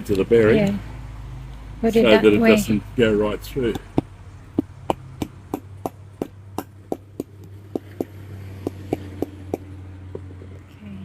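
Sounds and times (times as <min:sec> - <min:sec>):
hammer tapping metal bearing: 0:03.7 - 0:10.3.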